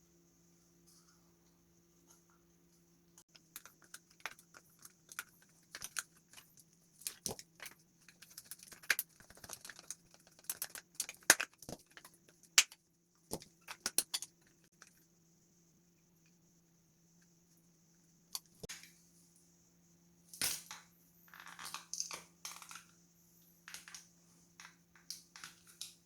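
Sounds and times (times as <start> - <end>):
plastic parts clicking: 3.3 - 15.0.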